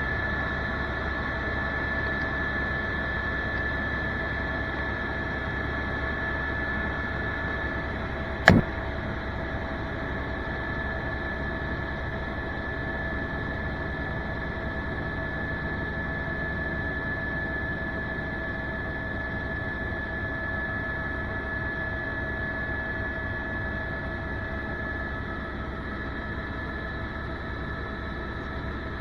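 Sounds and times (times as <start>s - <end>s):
sharp click: 8.5s - 8.7s.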